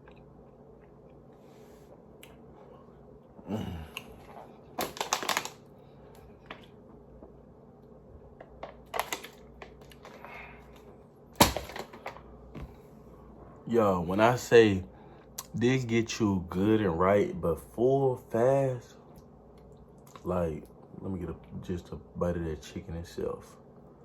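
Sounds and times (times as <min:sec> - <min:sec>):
chewing and mouth sounds: 0:00.0 - 0:01.3.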